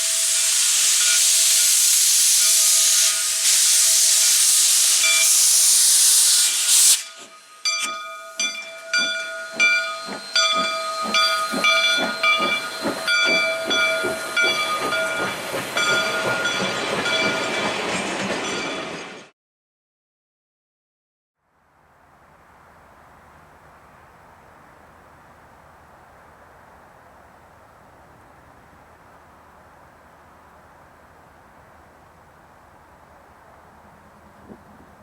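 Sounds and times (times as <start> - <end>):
steam hissing: 0.0 - 18.0
steam locomotive exhaust chuffs: 0.0 - 18.5.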